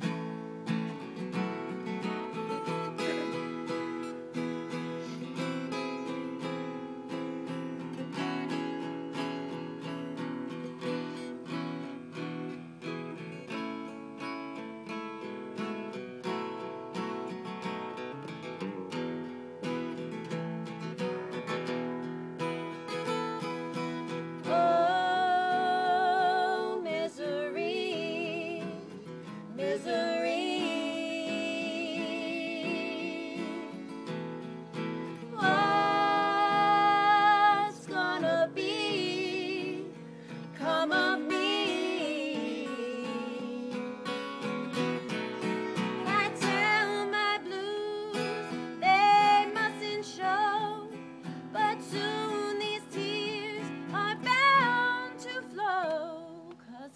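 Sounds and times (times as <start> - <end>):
acoustic guitar: 0.0 - 56.9
person singing with vibrato: 24.4 - 44.4, 45.0 - 56.9.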